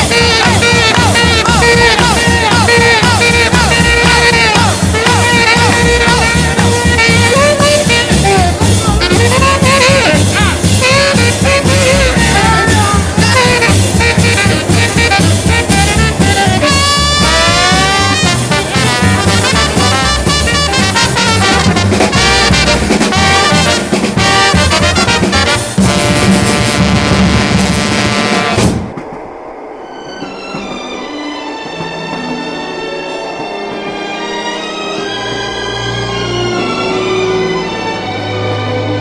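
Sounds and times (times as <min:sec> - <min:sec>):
wind instrument solo: 0:00.0 - 0:28.9
swing jazz band: 0:00.0 - 0:29.0.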